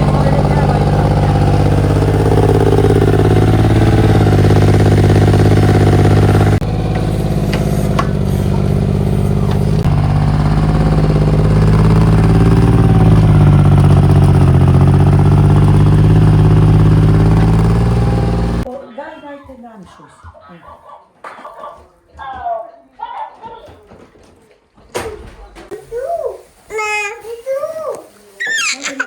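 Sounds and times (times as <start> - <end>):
mini excavator engine running: 0.0 - 18.7.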